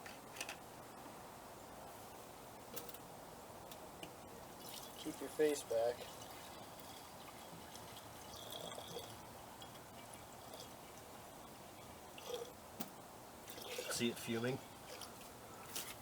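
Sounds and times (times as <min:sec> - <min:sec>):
acid fizzing: 0:04.6 - 0:12.6, 0:13.4 - 0:15.2
liquid dripping: 0:05.9 - 0:12.6, 0:13.4 - 0:14.1.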